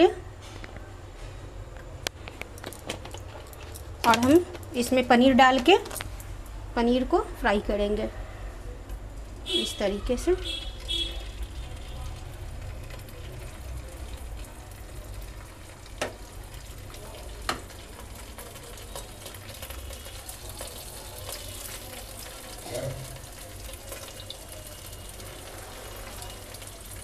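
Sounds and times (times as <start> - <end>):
food sizzling in hot oil: 10.8 - 27.0
clatter in frying pan: 15.2 - 27.0
taps in frying pan: 16.0 - 16.2, 17.4 - 17.7.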